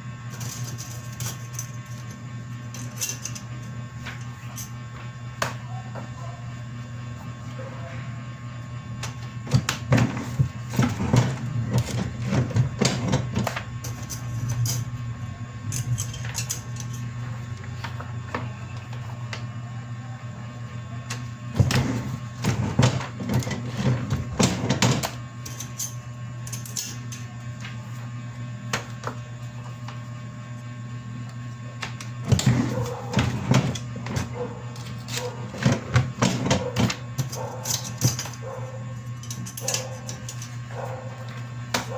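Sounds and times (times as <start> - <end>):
machine humming: 0.0 - 27.1.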